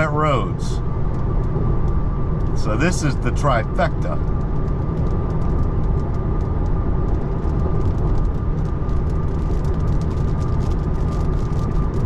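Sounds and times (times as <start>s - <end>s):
tyre and road noise: 0.0s - 12.0s
raindrops pattering on car: 1.0s - 12.0s.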